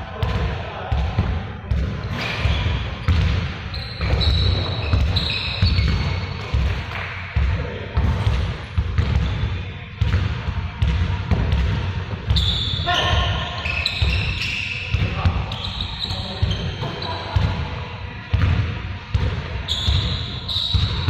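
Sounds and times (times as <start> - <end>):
basketballs bouncing on court: 0.2 - 21.0
sneaker squeaks: 2.0 - 6.8, 9.0 - 9.7, 12.3 - 17.6, 19.6 - 21.0.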